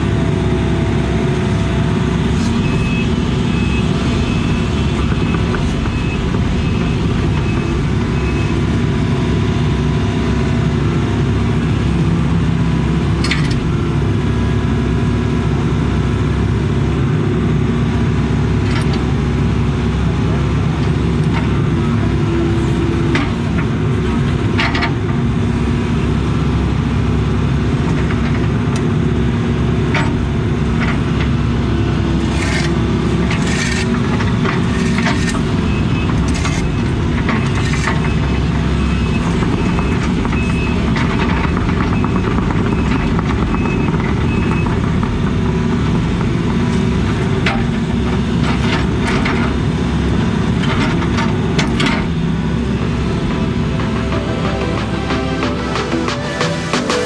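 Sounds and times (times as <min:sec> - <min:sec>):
excavator diesel engine running: 0:00.0 - 0:57.0
high backup alarm beeps: 0:02.6 - 0:08.6.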